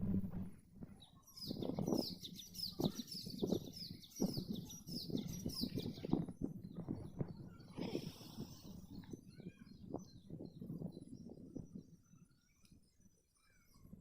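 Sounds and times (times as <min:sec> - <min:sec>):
low rustling thumps: 0:00.0 - 0:01.0
birds chirping: 0:01.0 - 0:13.9.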